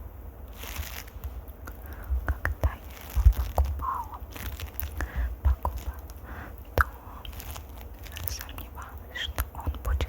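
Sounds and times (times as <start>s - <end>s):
soft low thumps: 0.6s - 6.2s.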